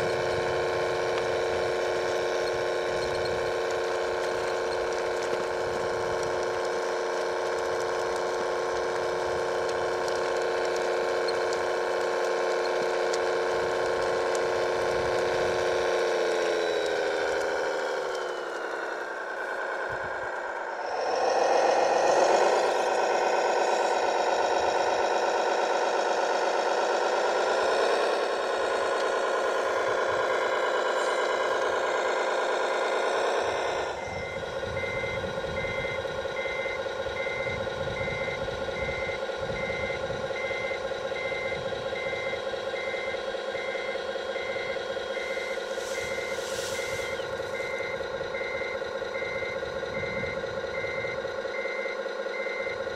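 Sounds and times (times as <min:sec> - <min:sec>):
model vehicle engine: 0:00.0 - 0:52.9
reversing alarm beeping: 0:16.5 - 0:52.9.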